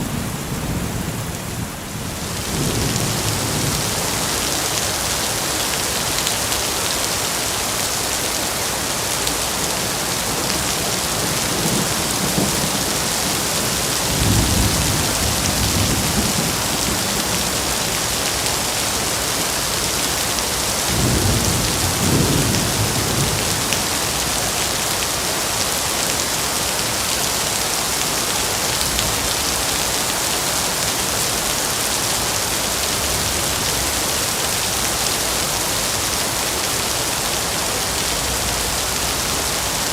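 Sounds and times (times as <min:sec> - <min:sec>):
thunder rumbling: 0:00.0 - 0:05.2, 0:10.6 - 0:18.7, 0:20.8 - 0:24.5
steady rain: 0:00.0 - 0:39.9.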